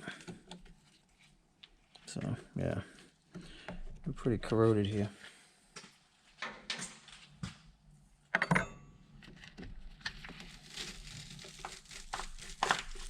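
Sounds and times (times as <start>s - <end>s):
tools scraping on cable: 9.2s - 13.0s.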